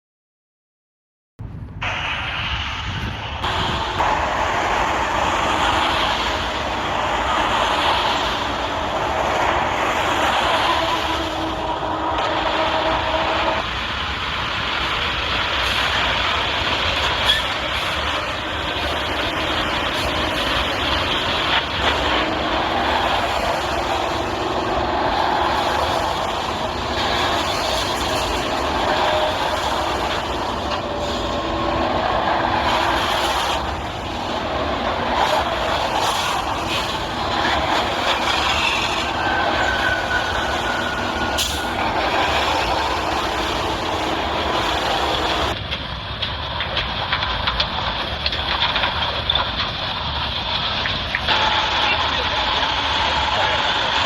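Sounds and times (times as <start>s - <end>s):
heavy vehicle rattling: 3.0s - 54.0s
short high squeal: 17.0s - 18.4s, 35.1s - 45.5s.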